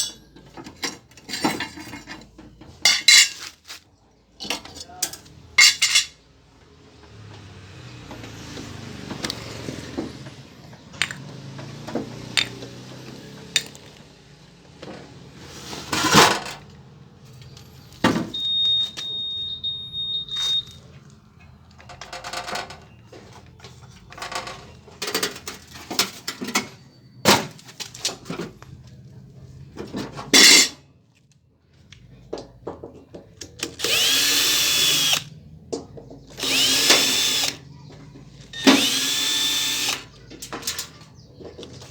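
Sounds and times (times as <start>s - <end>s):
metal tools clinking and clattering: 0.0s - 3.8s, 4.4s - 6.2s, 21.7s - 26.8s, 29.8s - 30.8s.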